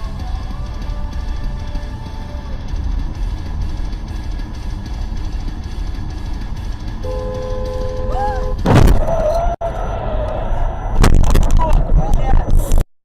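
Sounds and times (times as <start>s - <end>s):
low vehicle rumble: 0.0s - 12.8s
two-note car horn honk: 7.0s - 8.7s
loud crash impact: 8.6s - 9.1s.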